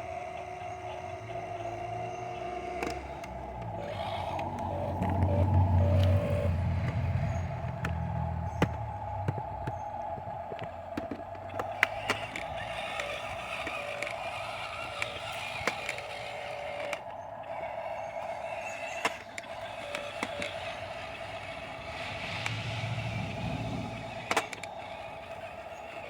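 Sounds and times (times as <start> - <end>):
dump truck engine droning: 0.0 - 26.0
sharp clicks and knocks: 2.4 - 16.1.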